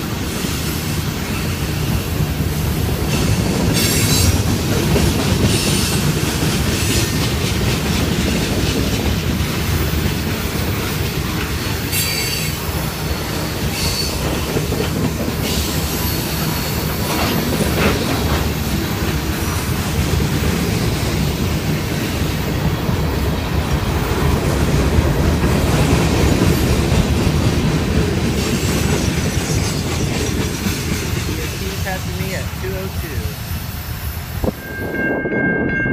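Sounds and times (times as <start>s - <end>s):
train wheels rumbling on rail: 0.0s - 35.9s
high-pitched wheel squeals: 34.4s - 35.9s.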